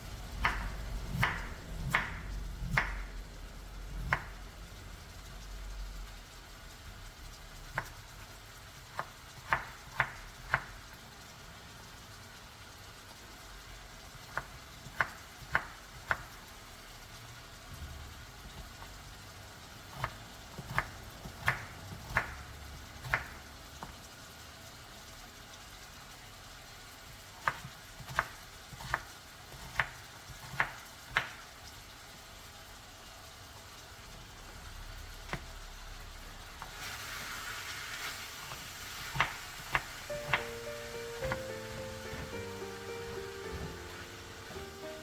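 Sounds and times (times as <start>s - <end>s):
steady hiss: 33.7s - 45.0s.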